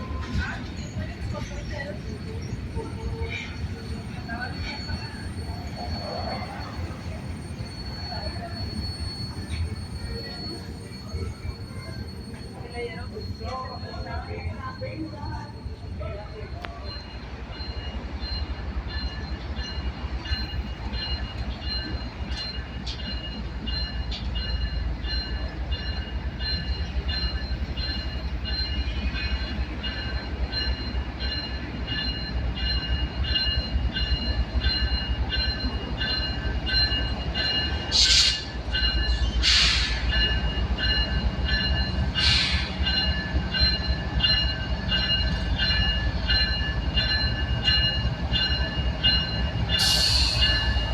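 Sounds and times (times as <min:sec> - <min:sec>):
train wheels rumbling on rails: 0:00.0 - 0:50.9
high pulsing wheel squeal: 0:02.2 - 0:16.0.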